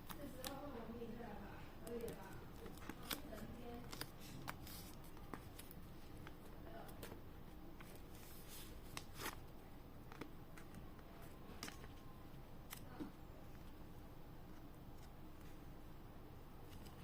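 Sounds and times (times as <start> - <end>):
packaging rustling: 1.8 - 7.1.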